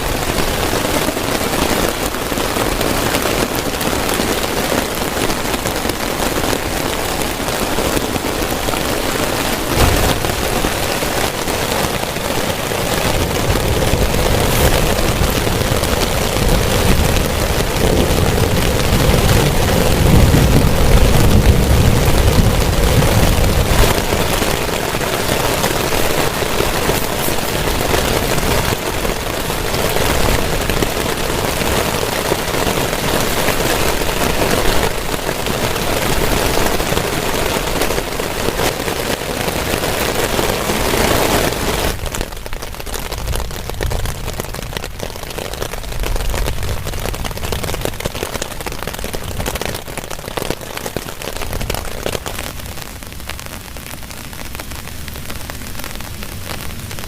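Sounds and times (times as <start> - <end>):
heavy rain hissing: 0.0 - 57.0
low rumble: 13.0 - 23.8.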